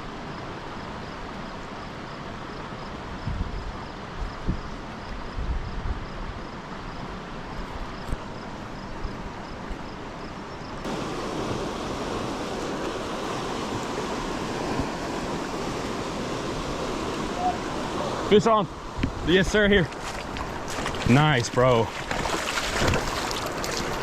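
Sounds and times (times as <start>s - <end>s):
wind on microphone: 3.2s - 6.4s
creek water rushing: 10.8s - 24.0s.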